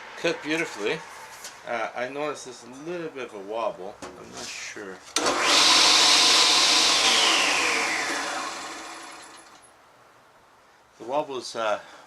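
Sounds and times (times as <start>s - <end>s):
table saw winding down: 5.2s - 9.6s.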